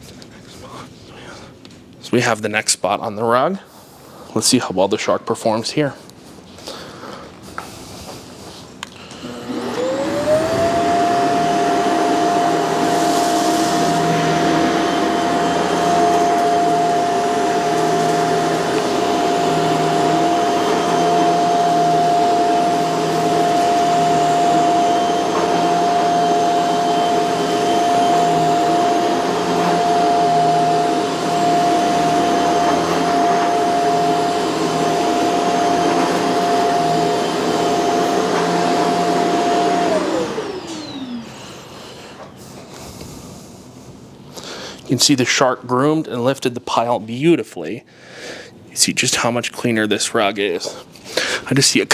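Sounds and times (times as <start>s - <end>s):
vacuum cleaner motor whine: 8.8s - 44.1s.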